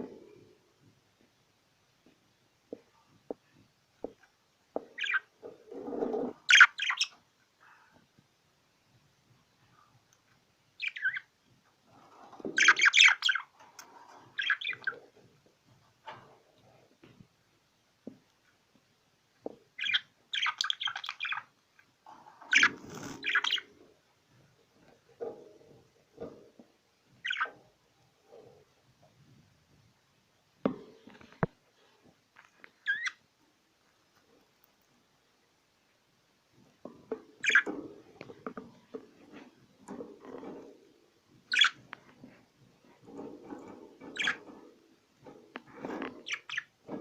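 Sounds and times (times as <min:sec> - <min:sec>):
small birds chirping: 0:04.1 - 0:08.0, 0:09.5 - 0:11.4, 0:12.0 - 0:15.2, 0:19.4 - 0:24.0, 0:27.2 - 0:27.6, 0:32.7 - 0:33.2, 0:37.3 - 0:38.8, 0:41.4 - 0:42.1, 0:42.8 - 0:44.7, 0:45.8 - 0:47.0.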